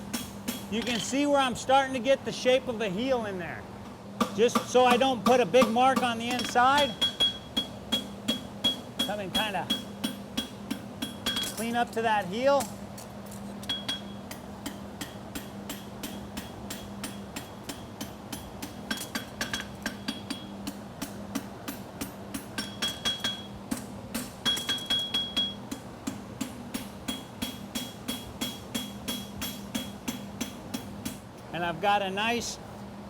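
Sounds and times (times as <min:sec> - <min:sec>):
hammer striking horseshoe on anvil: 0:00.1 - 0:01.1, 0:04.2 - 0:11.8, 0:13.6 - 0:31.2.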